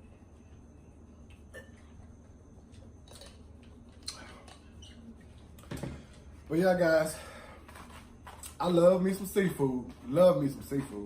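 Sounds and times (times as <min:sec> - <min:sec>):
low steady hum: 0:00.0 - 0:11.0
person eating and handling food: 0:00.6 - 0:06.5.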